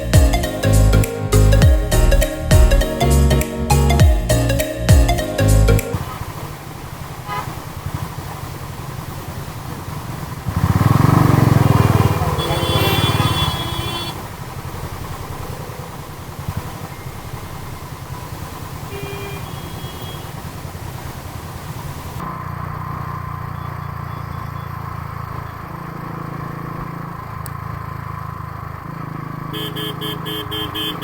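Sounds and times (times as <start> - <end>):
wind and road noise: 5.9 - 31.0
motorcycle engine running: 6.0 - 31.0.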